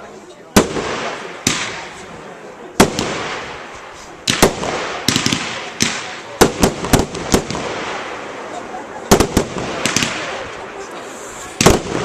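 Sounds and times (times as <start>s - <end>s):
firework crackling: 0.0s - 12.0s
firework bangs: 0.5s - 12.0s.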